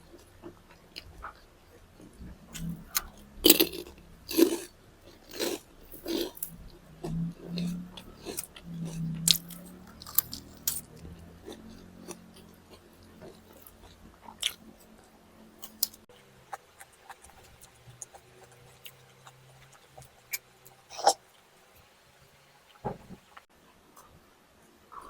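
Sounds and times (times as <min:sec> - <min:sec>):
person chewing food: 0:00.0 - 0:21.4
faint low hum: 0:00.0 - 0:25.0.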